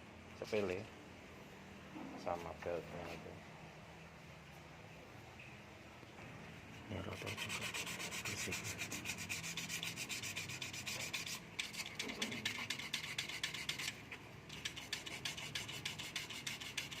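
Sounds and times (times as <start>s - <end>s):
brush scrubbing: 7.0s - 17.0s.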